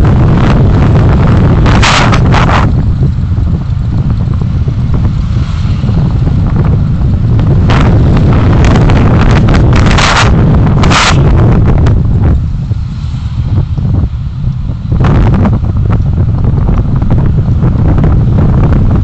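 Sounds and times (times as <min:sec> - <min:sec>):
road noise: 0:00.0 - 0:19.0
wind rumble on microphone: 0:00.0 - 0:19.0.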